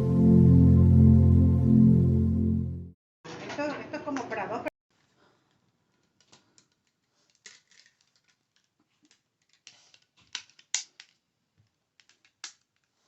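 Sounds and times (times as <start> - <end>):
small items tapping and clicking: 5.0 - 13.0.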